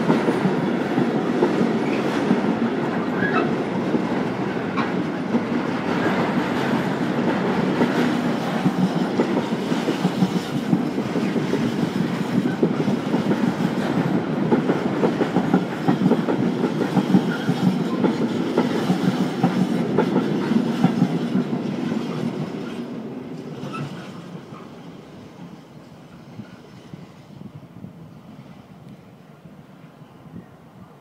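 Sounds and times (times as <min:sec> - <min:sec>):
train wheels clickety-clack: 0:00.0 - 0:27.4.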